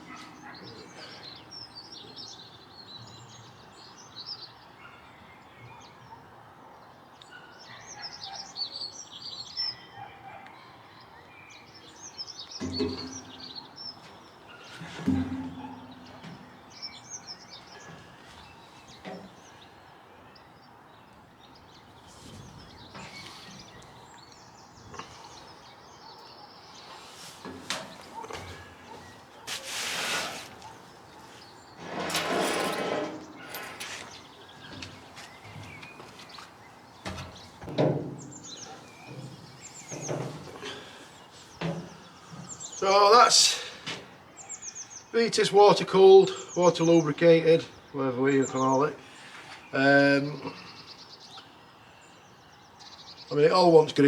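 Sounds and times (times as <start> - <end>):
birds chirping: 0.0 - 54.0
metal scraping: 27.1 - 36.1
metal parts knocking: 32.0 - 34.1.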